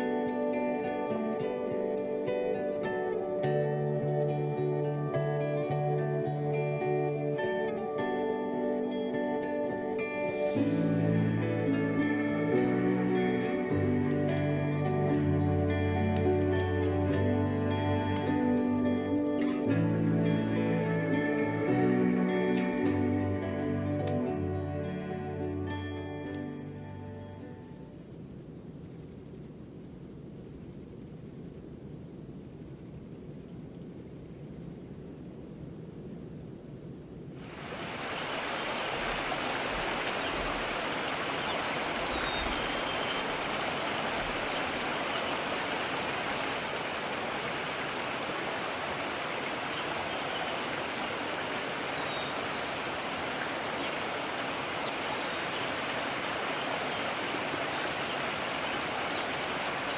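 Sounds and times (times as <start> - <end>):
mountain stream rushing: 10.4 - 27.7, 37.4 - 59.9
faint bird chirps: 40.0 - 43.5.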